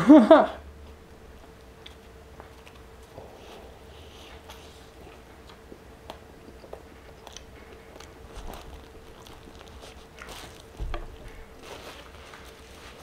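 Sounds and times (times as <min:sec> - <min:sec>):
chewing with wet mouth smacks: 0:01.5 - 0:03.2, 0:04.4 - 0:11.6
wrapping paper rustling: 0:08.0 - 0:13.0.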